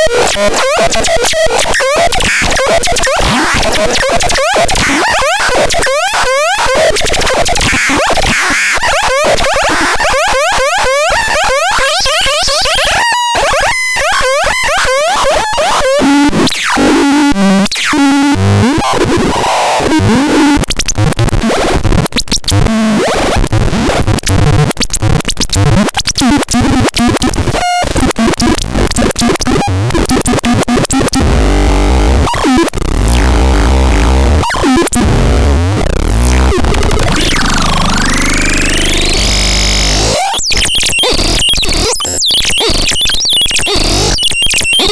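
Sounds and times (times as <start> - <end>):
synthesizer harsh electronic noise: 29.0 - 44.9
stepped low synth notes: 31.2 - 40.2.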